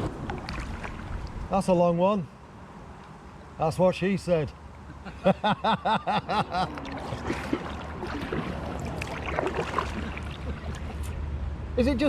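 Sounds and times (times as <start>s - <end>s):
paddle splashing in water: 0.0s - 1.4s, 6.6s - 11.2s
person laughing: 4.9s - 6.8s.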